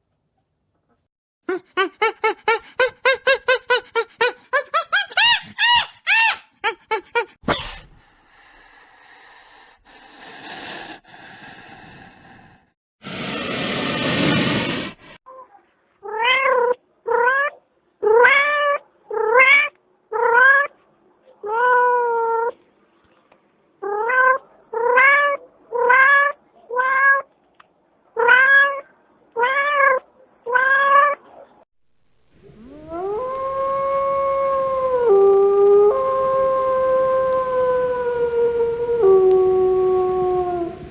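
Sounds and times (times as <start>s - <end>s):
burst of noise: 7.4s - 15.2s
dog or wolf howling: 32.7s - 40.9s.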